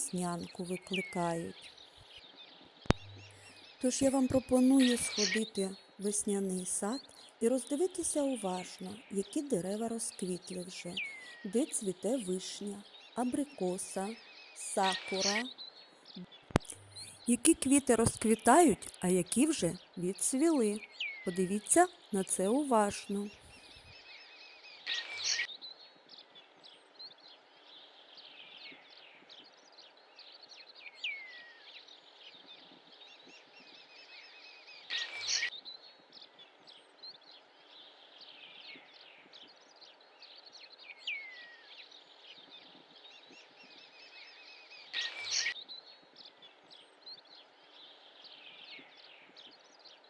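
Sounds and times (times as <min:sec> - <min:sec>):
birds chirping and singing: 0:00.0 - 0:23.9.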